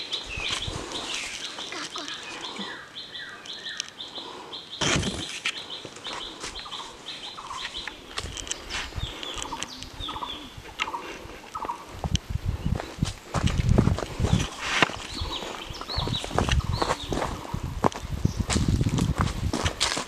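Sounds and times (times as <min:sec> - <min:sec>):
birds chirping: 0:00.0 - 0:19.2
footsteps: 0:04.8 - 0:20.0
descending whistled bird notes: 0:08.6 - 0:11.0.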